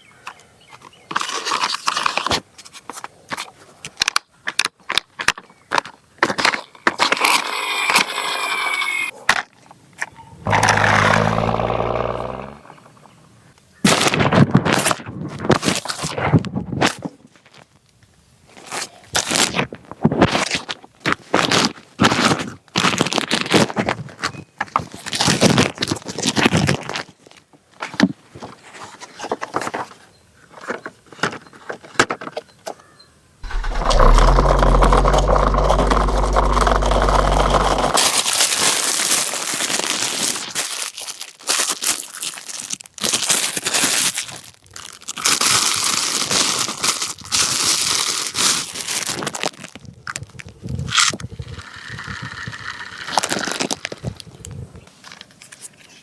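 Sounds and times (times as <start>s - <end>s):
loud steady hum: 10.4s - 12.9s, 33.4s - 38.0s
packaging crinkling and tearing: 33.4s - 49.9s.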